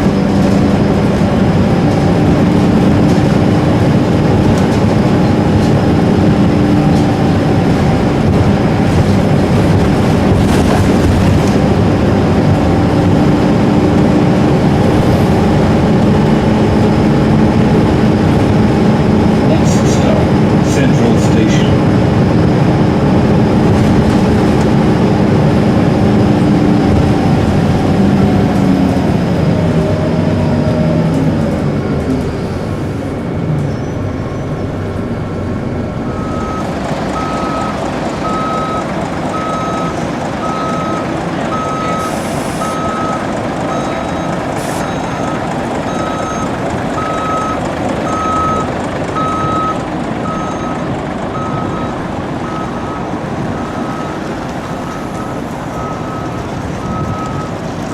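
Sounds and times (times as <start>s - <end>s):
bus engine pulling away: 0.0s - 57.9s
traffic noise: 0.0s - 57.9s.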